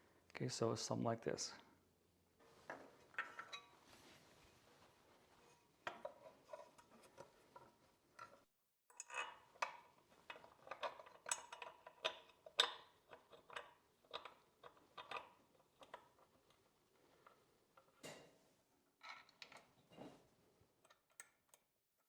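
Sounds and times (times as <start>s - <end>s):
metal bolts clicking and clinking: 8.2s - 15.2s.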